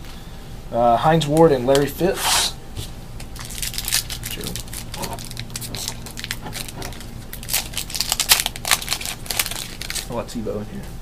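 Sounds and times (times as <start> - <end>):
card pack wrapper crinkling: 3.2 - 10.2.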